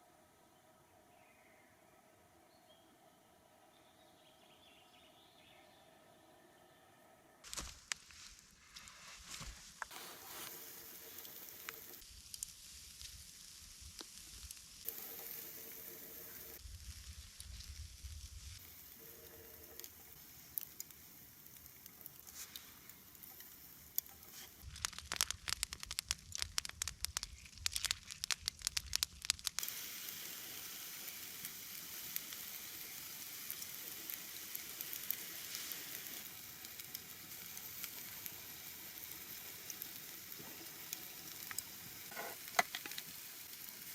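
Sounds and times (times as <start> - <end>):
sharp crackling pops: 7.4 - 8.5, 9.6 - 43.9
food sizzling in frying: 9.8 - 43.9.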